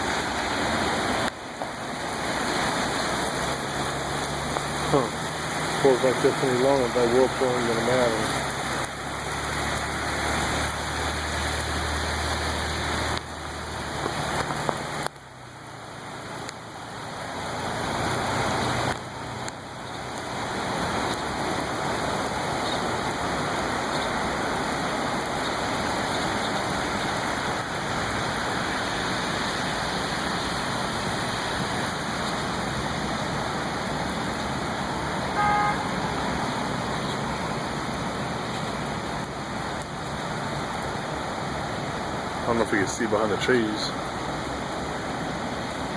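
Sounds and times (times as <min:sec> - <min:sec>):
heavy rain pouring: 0:00.0 - 0:45.9
brief beep: 0:35.4 - 0:35.8.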